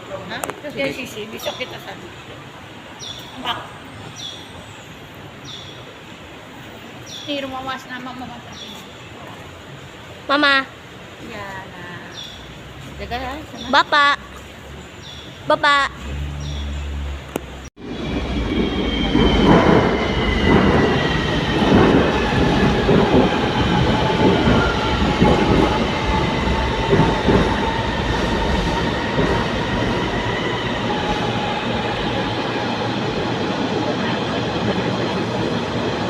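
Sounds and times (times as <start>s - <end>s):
train rumble inside carriage: 15.4s - 36.0s.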